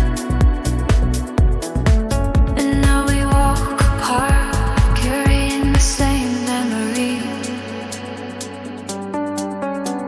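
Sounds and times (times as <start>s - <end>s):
kick drum beat: 0.0s - 6.2s
lounge electronic music: 0.0s - 10.0s.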